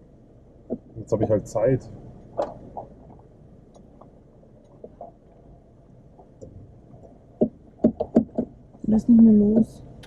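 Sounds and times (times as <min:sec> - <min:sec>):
car engine idling: 0:00.0 - 0:10.0
small clicks and creaks: 0:02.3 - 0:05.5.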